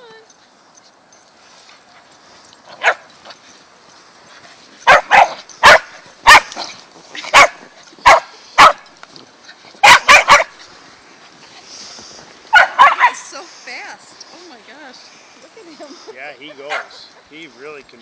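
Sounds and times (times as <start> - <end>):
dog barking: 2.8 - 3.1, 4.8 - 6.6, 7.3 - 8.8, 9.8 - 10.5, 12.5 - 13.2, 16.6 - 17.1.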